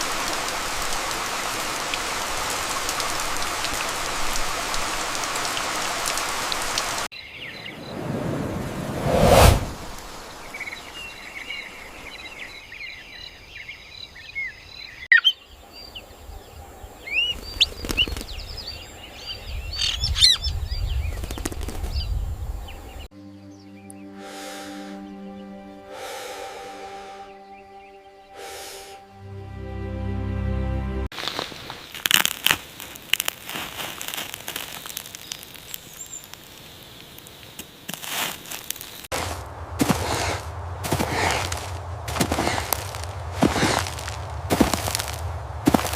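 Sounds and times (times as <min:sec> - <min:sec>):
wild birds chirping: 0:05.9 - 0:08.9, 0:09.8 - 0:29.3, 0:34.8 - 0:37.9
low rumble: 0:07.8 - 0:10.2, 0:39.2 - 0:45.9
fire crackling and popping: 0:31.2 - 0:45.9.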